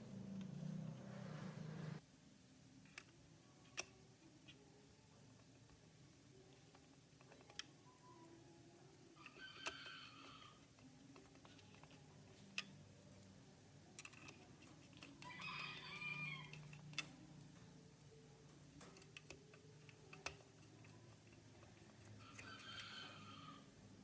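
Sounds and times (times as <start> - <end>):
faint rooster crowing: 9.1 - 10.9, 15.0 - 16.9, 22.0 - 24.0.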